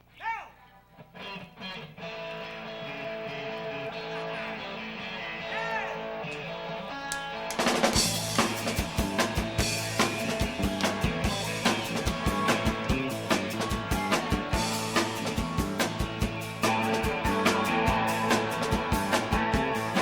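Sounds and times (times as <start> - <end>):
bass guitar: 1.0 - 20.0
held electric guitar notes: 1.0 - 20.0
drum kit beat: 7.5 - 20.0.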